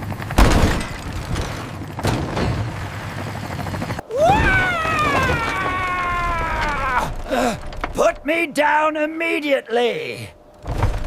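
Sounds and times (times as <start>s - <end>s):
rumbling noise: 0.0s - 8.6s, 10.3s - 11.0s
long drawn-out cry: 4.0s - 8.0s.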